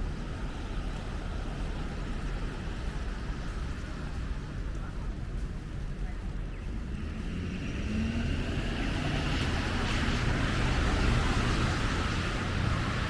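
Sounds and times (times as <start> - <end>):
car passing with tyre hiss: 6.7 - 13.0.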